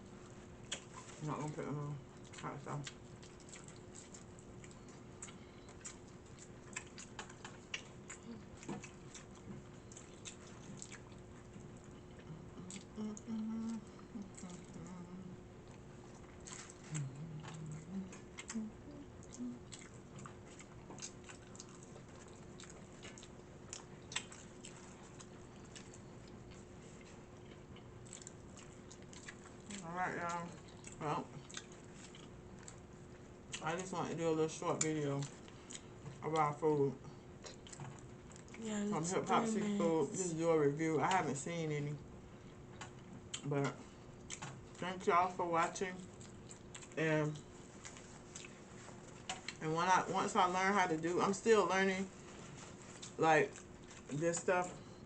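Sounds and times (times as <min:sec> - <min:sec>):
person chewing and crunching: 0:00.2 - 0:33.9, 0:34.5 - 0:38.6, 0:42.3 - 0:43.5, 0:44.1 - 0:45.1, 0:45.7 - 0:49.6, 0:52.3 - 0:54.9
brief low hums: 0:12.2 - 0:15.4, 0:16.8 - 0:19.6.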